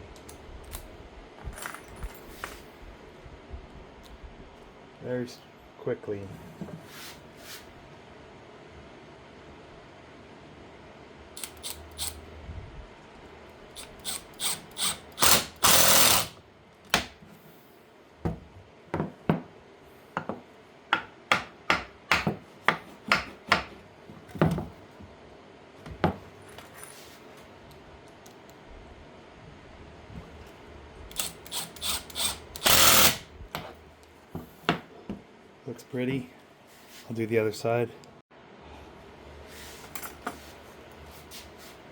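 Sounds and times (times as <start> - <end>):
woodworking tool clicking: 11.4 - 12.2, 13.8 - 16.4, 31.1 - 33.2.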